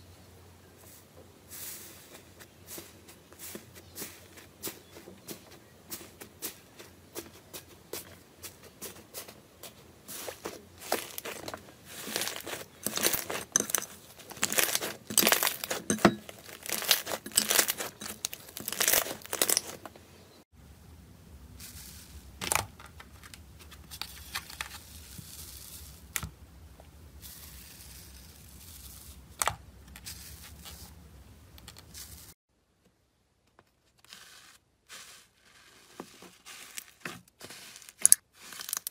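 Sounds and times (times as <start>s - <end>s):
slime crackling and tearing: 10.8s - 19.8s.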